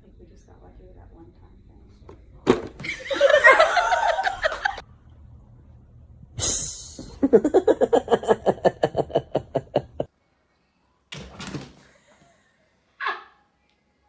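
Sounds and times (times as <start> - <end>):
short hiss: 6.4 - 7.1
person laughing: 7.1 - 10.1.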